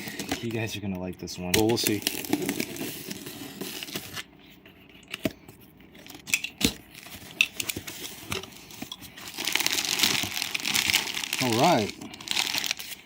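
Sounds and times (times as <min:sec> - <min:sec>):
plastic pouch rustling: 0:06.9 - 0:13.0.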